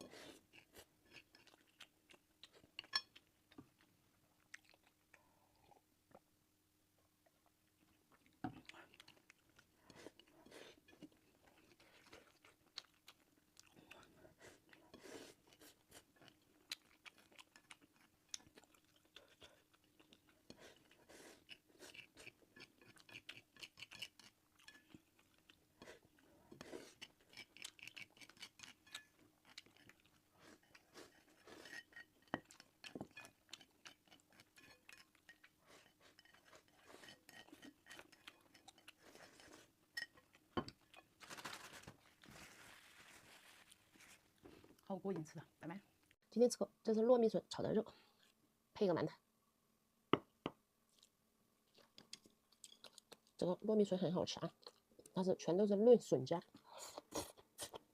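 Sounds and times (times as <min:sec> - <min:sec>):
person chewing food: 0:00.0 - 0:06.2, 0:07.3 - 0:42.8, 0:50.9 - 0:53.4, 0:54.6 - 0:55.2.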